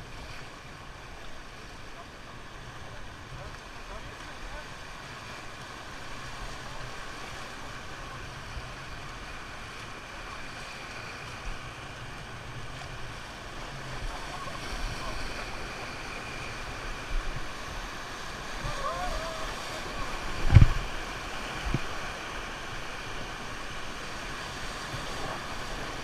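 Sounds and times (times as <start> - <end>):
river water rushing: 0.0 - 26.0
wind on microphone: 13.9 - 26.0.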